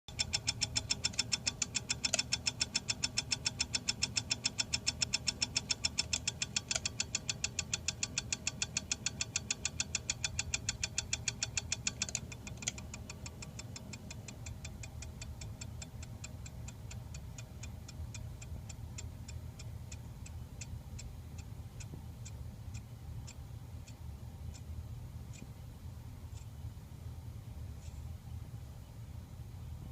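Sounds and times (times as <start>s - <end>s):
ceiling fan rhythmic clicking: 0.1s - 29.9s
fan motor low hum: 0.1s - 29.9s.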